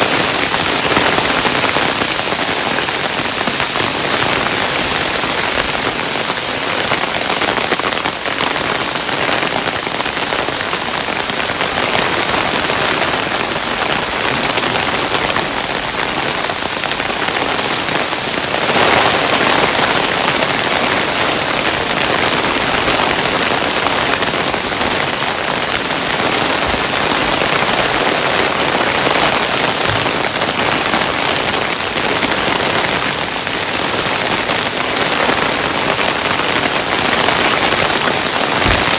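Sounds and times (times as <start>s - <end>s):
hailstones falling: 34.7s - 38.9s.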